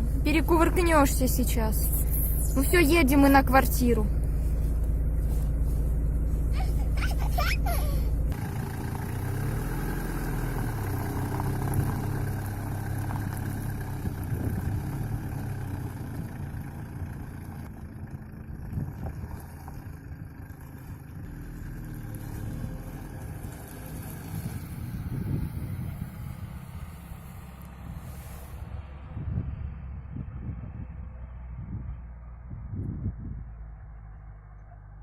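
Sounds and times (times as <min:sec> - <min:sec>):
car engine humming: 0:00.0 - 0:30.0.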